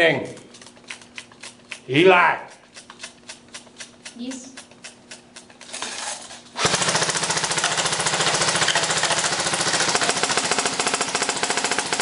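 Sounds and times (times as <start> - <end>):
airsoft gun firing full auto: 6.6 - 12.0.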